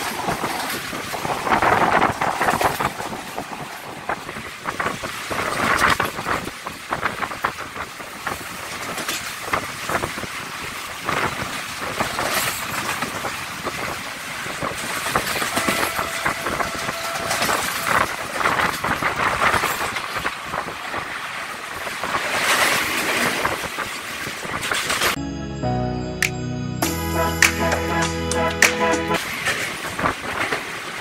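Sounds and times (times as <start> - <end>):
train rushing noise: 0.0 - 25.2, 26.8 - 31.0
wheels clattering over rail joints: 0.0 - 25.2, 29.2 - 31.0
faint high tone: 15.5 - 18.1.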